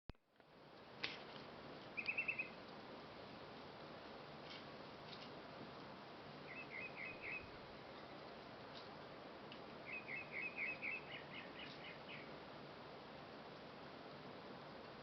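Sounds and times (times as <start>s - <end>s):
steady hiss: 0.3s - 15.0s
bird chirping: 1.9s - 2.6s, 6.4s - 8.4s, 9.8s - 12.4s.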